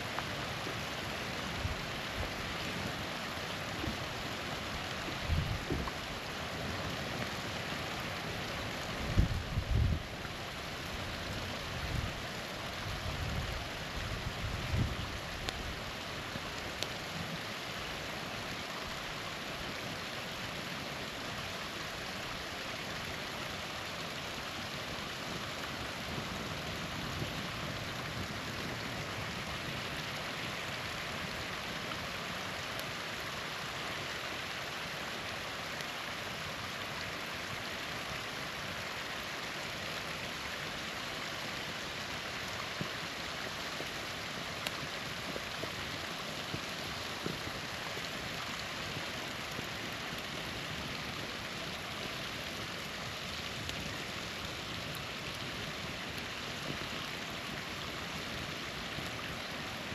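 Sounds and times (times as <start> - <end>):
small waterfall rushing: 0.0 - 59.9.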